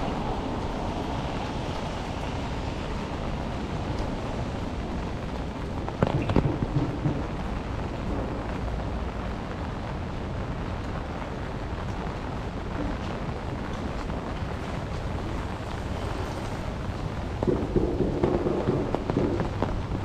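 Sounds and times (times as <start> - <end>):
city street noise: 0.0 - 20.0
steady rain: 0.0 - 20.0
sharp knocks: 17.4 - 19.6.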